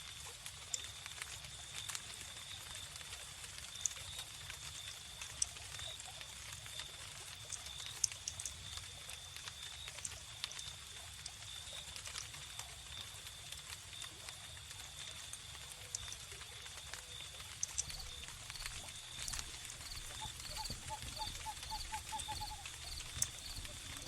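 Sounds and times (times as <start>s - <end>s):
wood fire crackling: 0.1s - 24.0s
cricket trill: 6.6s - 24.0s.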